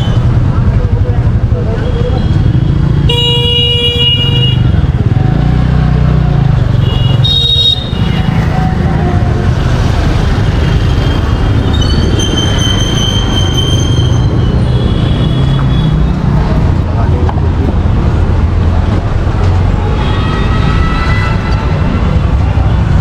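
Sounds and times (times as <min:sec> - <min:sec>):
vehicle engines running: 0:00.0 - 0:23.0
vehicle horns honking: 0:01.9 - 0:04.8, 0:06.7 - 0:08.5.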